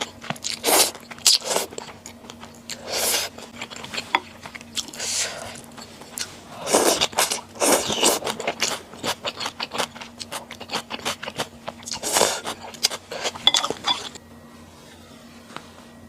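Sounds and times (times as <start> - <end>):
close chewing and mouth clicks: 0.0 - 14.2.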